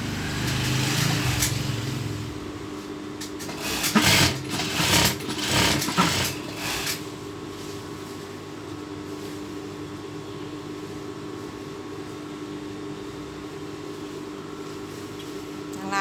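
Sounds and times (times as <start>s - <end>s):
sewing machine stitching: 3.4s - 7.0s.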